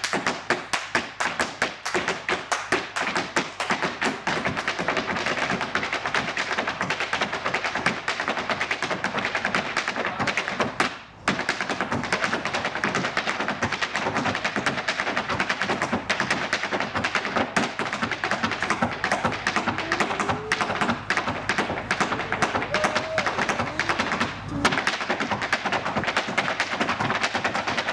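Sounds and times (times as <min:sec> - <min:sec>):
hard shoes tapping on floor: 0:10.3 - 0:27.9.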